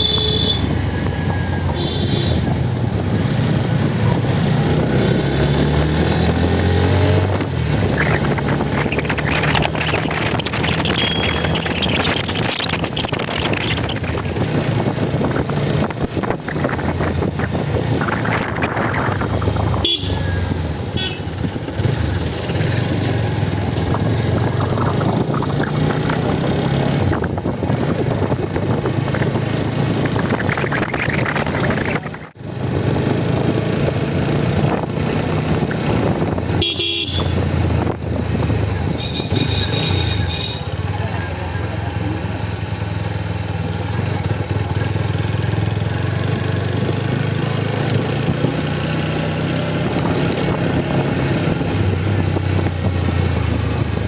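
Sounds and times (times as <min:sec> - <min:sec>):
wind noise: 0:00.0 - 0:41.1, 0:42.7 - 0:54.0
motorcycle engine running: 0:00.0 - 0:54.0
short horn toots: 0:19.8 - 0:20.3, 0:36.6 - 0:37.4.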